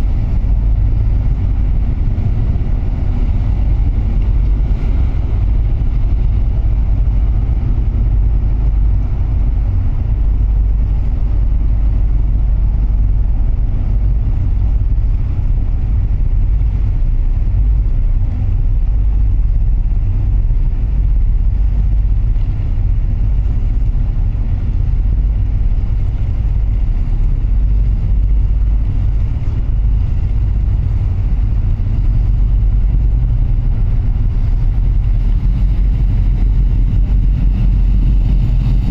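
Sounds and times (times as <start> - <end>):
ship engines rumbling: 0.0 - 38.9
water noise: 0.0 - 38.9.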